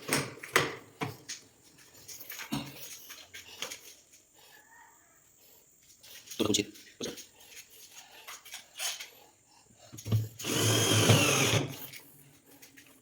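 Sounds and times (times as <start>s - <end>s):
power drill running: 10.4s - 11.9s.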